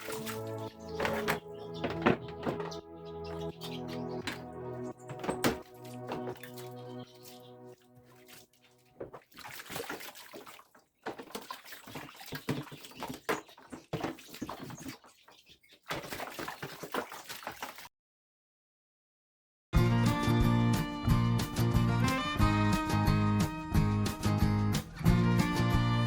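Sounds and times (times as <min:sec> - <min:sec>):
water splashing and sloshing: 0:00.0 - 0:17.9
knocks and clatter: 0:00.9 - 0:03.5, 0:04.1 - 0:06.6.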